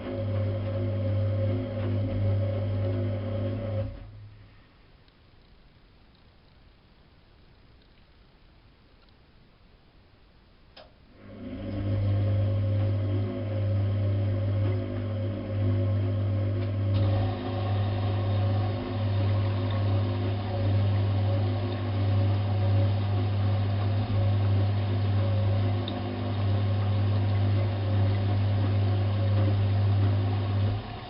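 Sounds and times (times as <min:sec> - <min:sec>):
washing machine motor humming: 0:00.0 - 0:04.2, 0:11.1 - 0:31.0.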